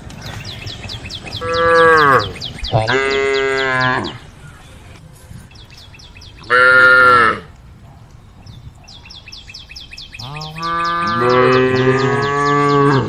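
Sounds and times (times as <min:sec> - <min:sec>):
cows mooing: 0:01.3 - 0:04.2, 0:06.4 - 0:07.5, 0:10.2 - 0:13.0.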